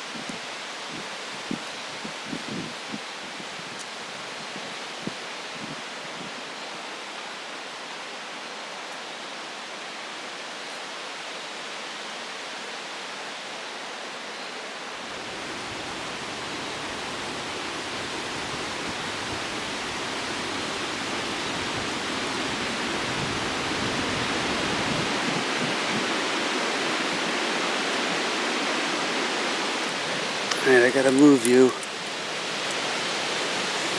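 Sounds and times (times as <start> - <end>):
wind rustling leaves: 0.0 - 33.9
wind rumble on microphone: 0.1 - 6.5, 15.2 - 28.7.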